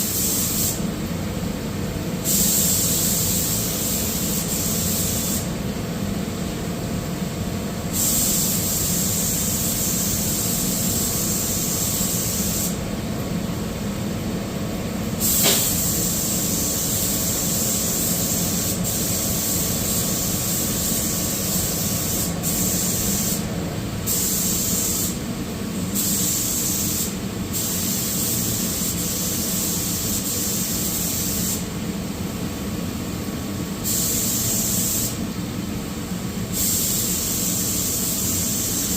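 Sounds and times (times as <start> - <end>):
paint spray gun hissing: 0.0 - 0.8, 2.3 - 5.5, 7.9 - 12.8, 15.2 - 23.5, 24.1 - 25.2, 26.0 - 31.6, 33.8 - 35.2, 36.5 - 38.9
steady low hum: 0.0 - 31.0.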